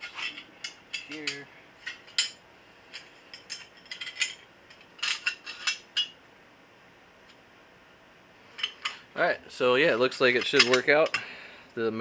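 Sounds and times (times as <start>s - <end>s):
steel brackets clinking together: 0.0s - 6.2s, 10.0s - 11.3s.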